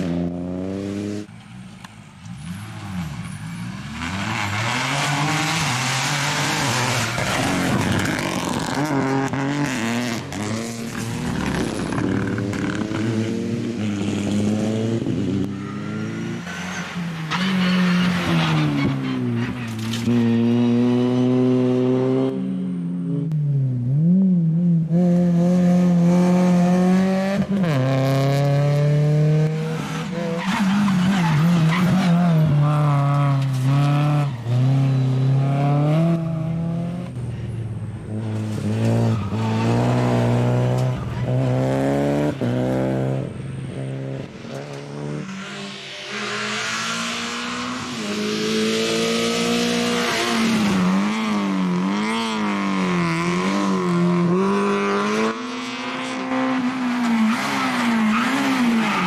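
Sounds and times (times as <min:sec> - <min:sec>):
rally car engines revving: 0:00.0 - 0:59.0
tyres hissing on road: 0:45.2 - 0:48.6.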